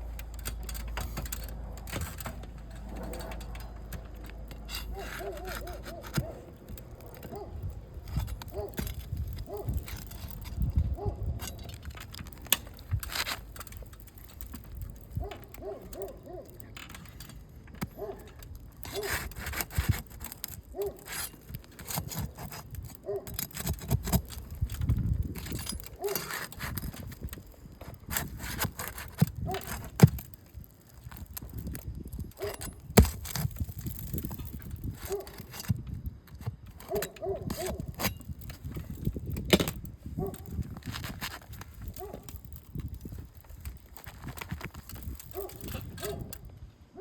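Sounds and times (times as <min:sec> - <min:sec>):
nails squeaking: 0:00.0 - 0:24.6
tool scraping and knocking shingles: 0:00.0 - 0:46.7.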